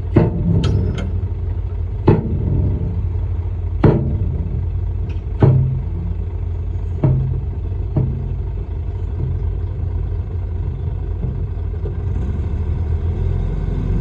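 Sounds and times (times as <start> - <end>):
bulldozer diesel engine rumbling: 0.0 - 14.0
sharp metallic clanks: 0.1 - 10.4.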